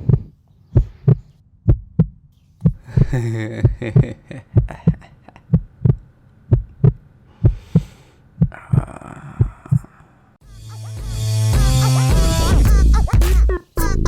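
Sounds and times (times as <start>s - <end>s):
heartbeat thumps: 0.0s - 9.9s.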